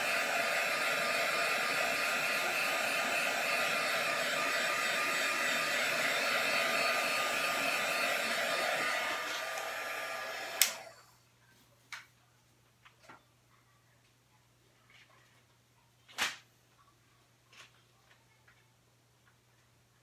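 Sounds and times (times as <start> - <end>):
fan winding down: 0.0 - 11.0
heat tool blowing hot air: 0.0 - 11.0
switch click: 10.6 - 10.8.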